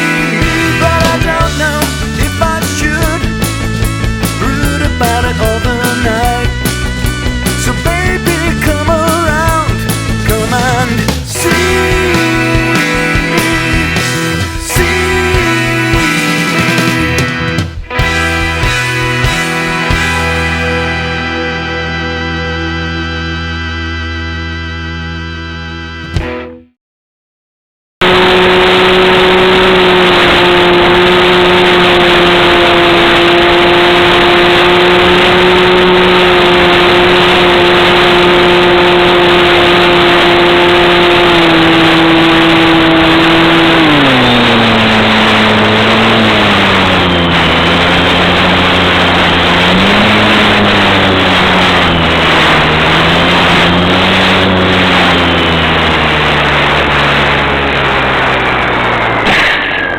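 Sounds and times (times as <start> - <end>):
wind rush: 28.0 - 59.6
electric motor and propeller: 28.0 - 59.9.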